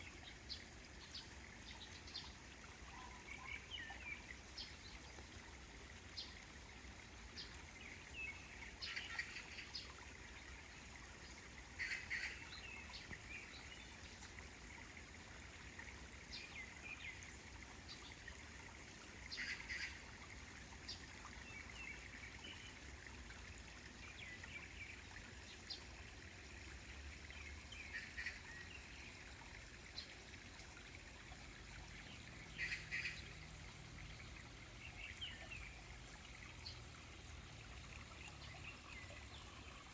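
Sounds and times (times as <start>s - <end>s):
faint background hiss: 0.0s - 39.9s
birds chirping: 32.1s - 33.4s.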